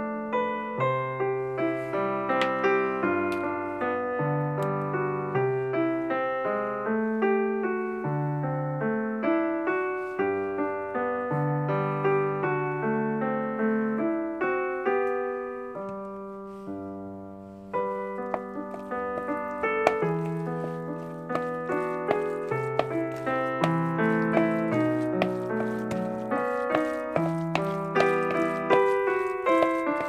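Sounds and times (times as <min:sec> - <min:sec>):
piano music: 0:10.4 - 0:30.0.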